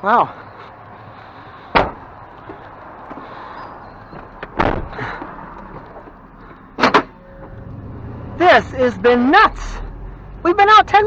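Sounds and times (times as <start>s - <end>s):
steady background noise: 0.0s - 11.0s
clattering thump: 1.7s - 3.2s, 4.1s - 7.6s.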